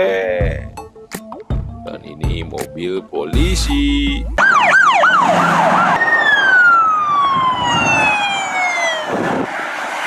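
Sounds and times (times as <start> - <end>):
toy police siren: 4.4 - 9.5.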